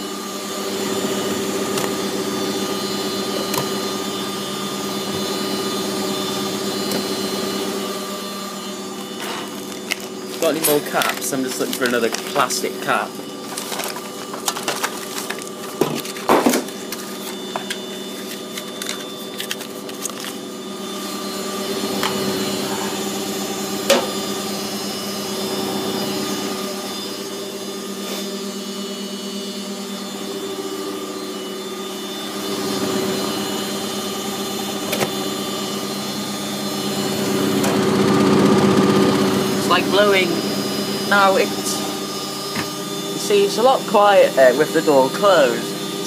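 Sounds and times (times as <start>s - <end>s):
washing machine drum spinning: 0.7s - 8.0s, 21.8s - 25.3s.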